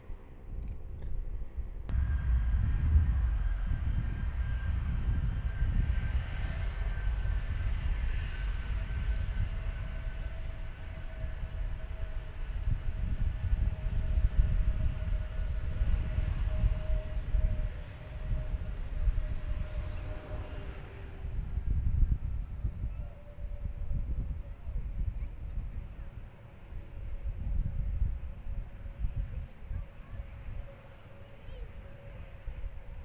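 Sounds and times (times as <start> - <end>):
jet engine whine: 0.0 - 33.0
jet engines rumbling: 0.0 - 33.0.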